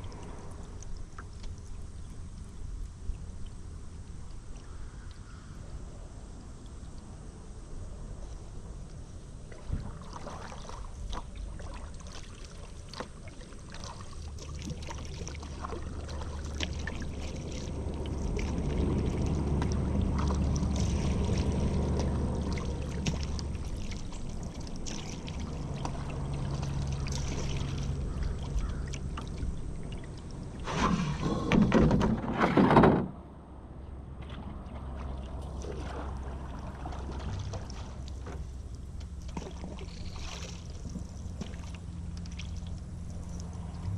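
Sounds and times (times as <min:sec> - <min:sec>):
paddle splashing and dripping: 0:00.0 - 0:05.3, 0:09.4 - 0:32.0, 0:34.2 - 0:43.9
low hum: 0:00.0 - 0:43.9
rushing water splash: 0:09.5 - 0:31.7, 0:34.2 - 0:43.9
paddle knocking against hull: 0:30.7 - 0:33.2.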